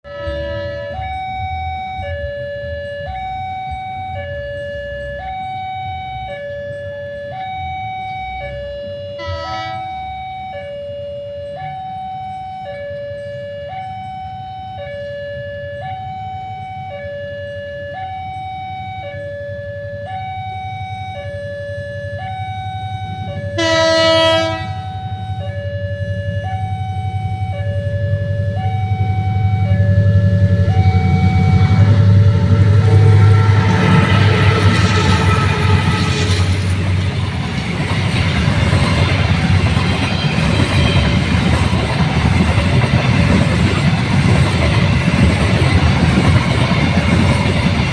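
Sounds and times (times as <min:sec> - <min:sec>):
train horn: 0:00.0 - 0:02.1, 0:08.4 - 0:10.8, 0:22.2 - 0:37.6
level crossing two-tone alarm: 0:00.1 - 0:47.9
low rumble: 0:24.9 - 0:40.5.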